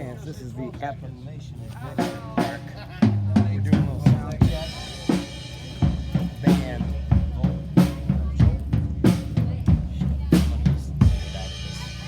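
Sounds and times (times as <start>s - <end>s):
kick and snare drum beating: 2.1s - 12.0s.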